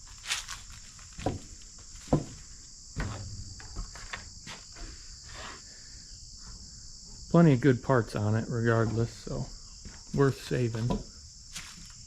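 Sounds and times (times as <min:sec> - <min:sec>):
short thuds or footsteps: 0:00.0 - 0:05.0, 0:09.8 - 0:12.0
high-pitched insect chorus: 0:00.0 - 0:12.0.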